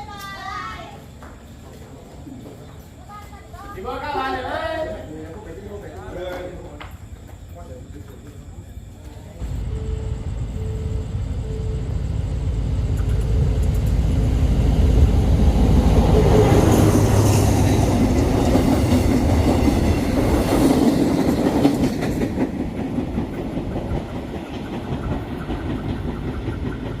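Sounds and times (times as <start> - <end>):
train wheels clattering: 12.5 - 27.0.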